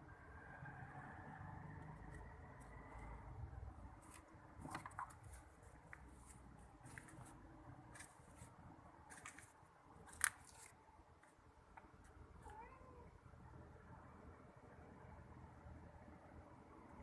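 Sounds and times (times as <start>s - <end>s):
cat meowing: 12.4s - 13.1s.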